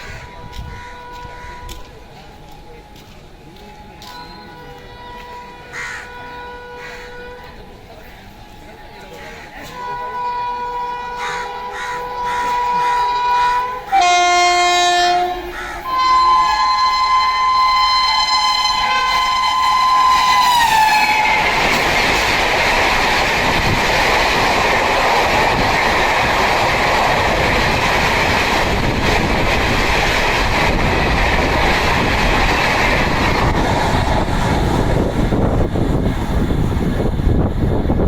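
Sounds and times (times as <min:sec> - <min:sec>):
locomotive horn: 0:00.0 - 0:01.8, 0:04.5 - 0:07.7, 0:09.2 - 0:21.8
train coaches rushing and clattering: 0:00.0 - 0:38.0.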